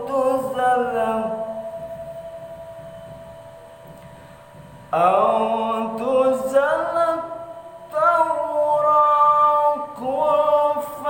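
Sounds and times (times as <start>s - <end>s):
person chanting melodic recitation: 5.0s - 11.0s.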